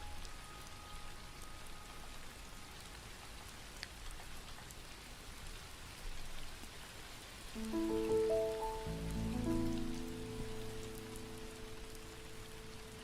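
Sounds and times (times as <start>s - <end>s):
steady rain: 0.0s - 13.0s
sustained piano chord: 7.6s - 13.0s.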